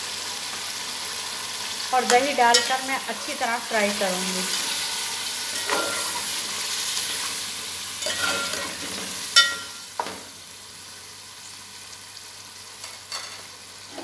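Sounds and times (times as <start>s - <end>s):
chicken sizzling in oil: 0.0s - 14.0s
metal spoon scraping pot: 4.5s - 6.4s, 8.0s - 8.8s.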